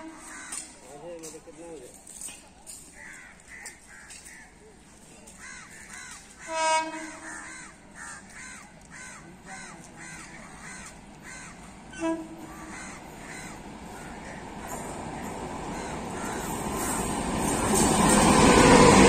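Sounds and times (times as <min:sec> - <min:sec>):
crow cawing: 0:00.2 - 0:00.7, 0:05.4 - 0:17.0.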